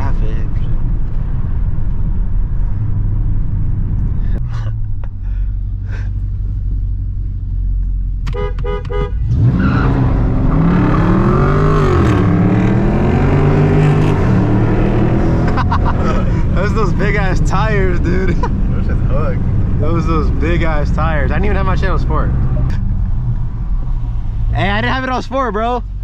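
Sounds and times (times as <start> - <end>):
car engine revving: 0.0 - 26.0
car horn toots: 8.3 - 9.4.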